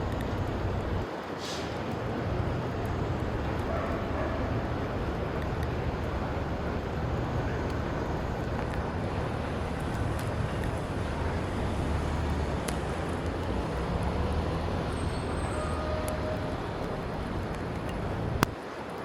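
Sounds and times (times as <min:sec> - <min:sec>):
traffic rumble: 0:00.0 - 0:19.0
wind: 0:00.0 - 0:19.0
faint clicks: 0:08.4 - 0:19.0.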